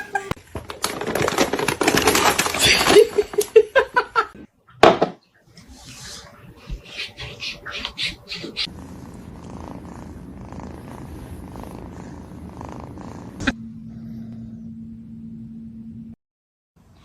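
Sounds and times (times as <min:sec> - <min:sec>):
steady low hum: 0:06.2 - 0:16.2
cat purring: 0:06.6 - 0:14.6.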